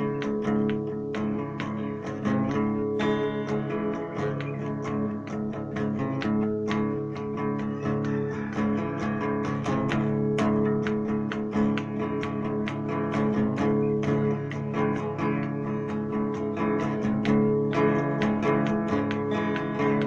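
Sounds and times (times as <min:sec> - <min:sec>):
plucked and strummed guitar: 0:00.0 - 0:20.0.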